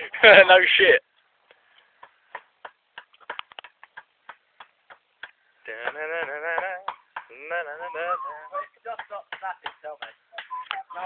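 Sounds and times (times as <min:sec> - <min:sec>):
person speaking: 0:07.3 - 0:11.0.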